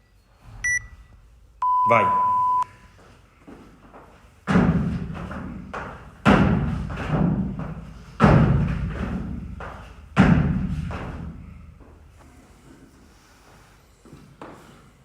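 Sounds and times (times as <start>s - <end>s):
heavy thumps of workout equipment: 4.4s - 12.0s.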